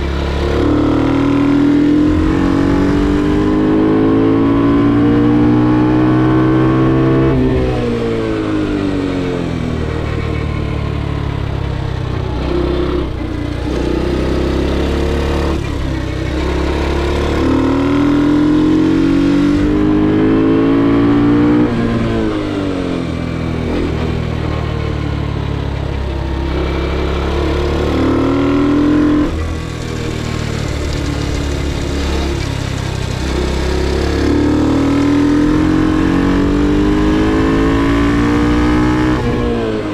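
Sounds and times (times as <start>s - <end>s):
motorcycle engine at full throttle: 0.0s - 39.9s.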